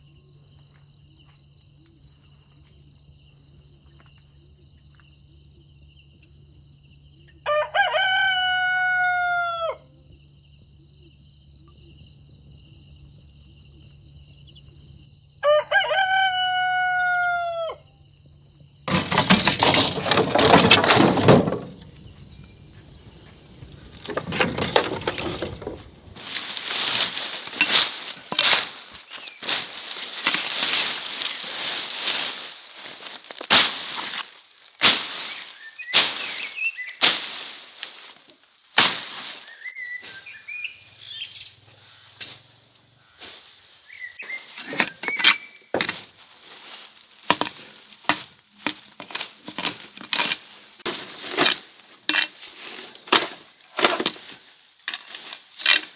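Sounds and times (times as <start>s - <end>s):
sharp knocks and crunches: 18.9s - 39.7s, 44.2s - 55.9s.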